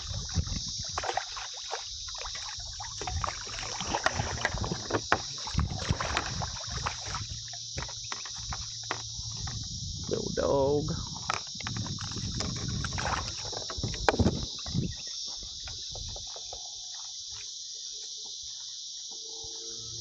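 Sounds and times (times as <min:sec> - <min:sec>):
knocks and splashes around kayak: 0:00.0 - 0:18.4
high-pitched background hiss: 0:07.4 - 0:11.6, 0:14.4 - 0:20.0.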